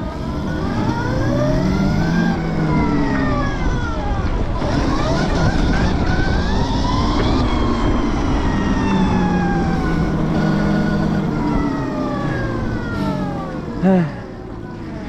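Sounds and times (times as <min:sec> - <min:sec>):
electric motorbike motor whining: 0:00.0 - 0:15.0
wind on microphone: 0:01.8 - 0:13.5.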